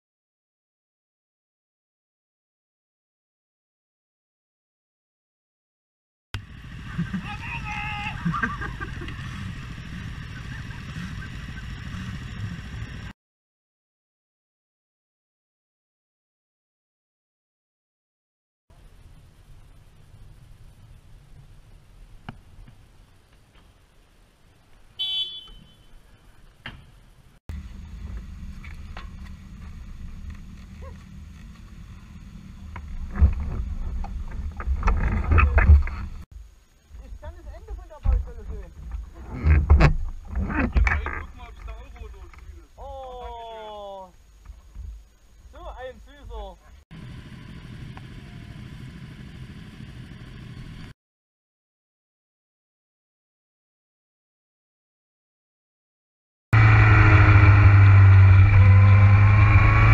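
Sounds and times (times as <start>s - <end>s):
motorcycle engine rumbling: 6.4s - 13.1s, 18.7s - 50.9s, 56.6s - 59.9s.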